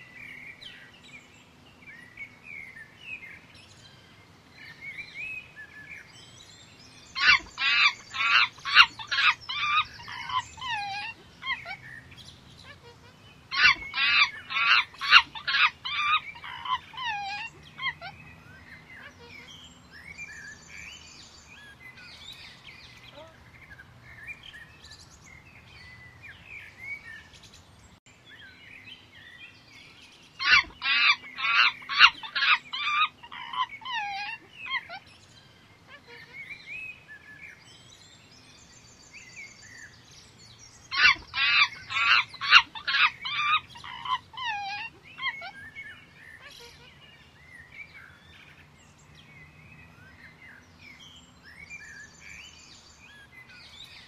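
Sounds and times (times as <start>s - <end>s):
high-pitched chattering calls: 30.4s - 34.9s, 41.0s - 45.5s.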